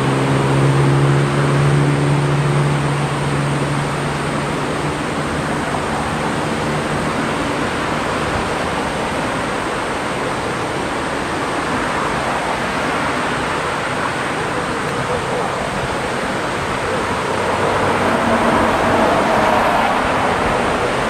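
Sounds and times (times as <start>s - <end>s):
surf breaking on beach: 0.0s - 21.0s.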